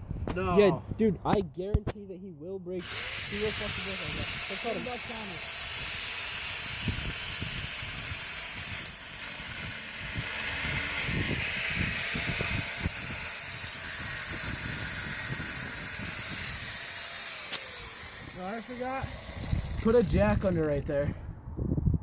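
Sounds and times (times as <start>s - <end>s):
angle grinder cutting metal: 2.8s - 20.9s.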